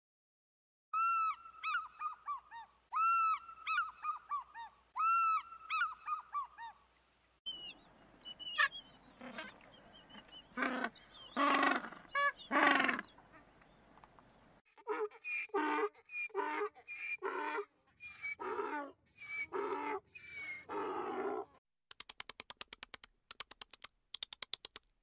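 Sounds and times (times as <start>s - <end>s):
eagle whistled chirps: 15.2s - 17.2s, 18.0s - 18.4s, 19.1s - 20.7s.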